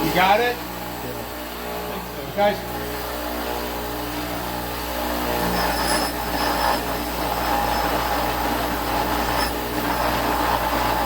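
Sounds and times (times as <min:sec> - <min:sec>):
grinder grinding iron: 0:05.1 - 0:11.0.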